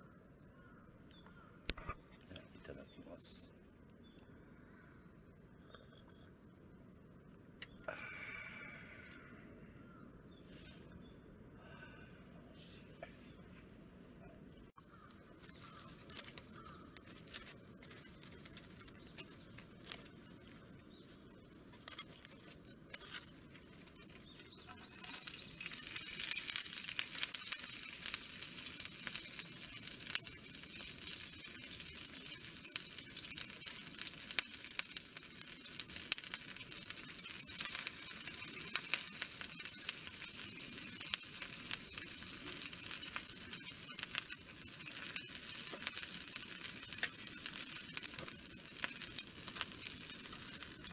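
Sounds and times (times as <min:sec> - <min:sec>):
food sizzling in a hot pan: 0:14.9 - 0:50.9.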